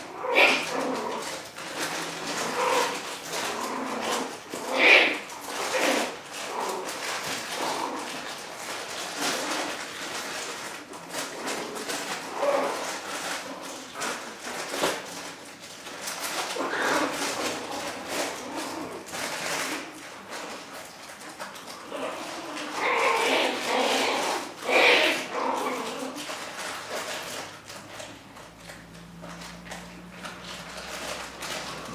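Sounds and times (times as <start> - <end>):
scuffling and rustling: 0.0 - 31.9
puppies squeaking and whimpering: 0.1 - 6.2, 21.8 - 26.2.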